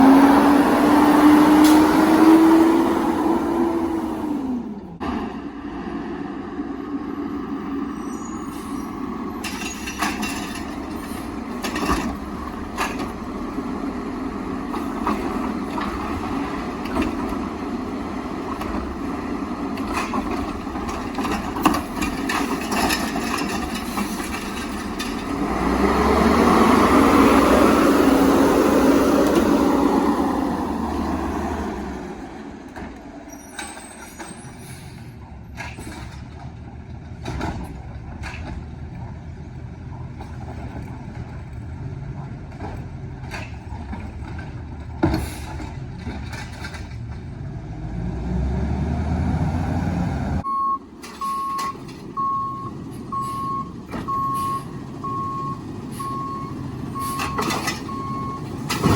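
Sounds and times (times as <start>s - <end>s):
garbage truck engine revving: 0.0s - 9.5s, 10.1s - 32.7s, 37.5s - 58.9s
clanks and knocks: 9.4s - 13.7s, 14.6s - 25.5s, 35.5s - 39.2s, 42.2s - 47.3s, 57.2s - 58.9s.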